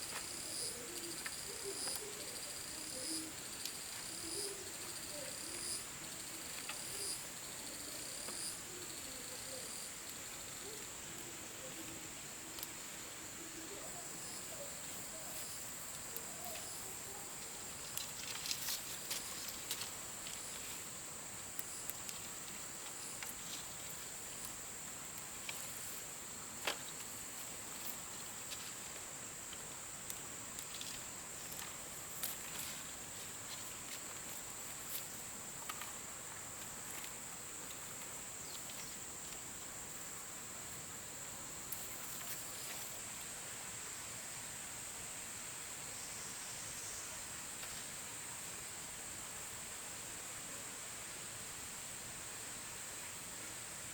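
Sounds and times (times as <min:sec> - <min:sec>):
high-pitched insect chorus: 0:00.0 - 0:53.9.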